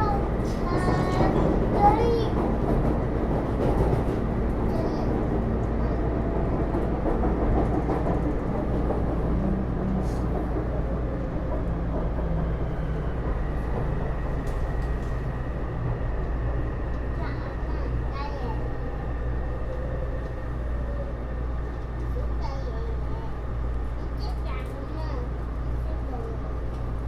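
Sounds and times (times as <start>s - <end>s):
train wheels rolling on rails: 0.0s - 27.0s.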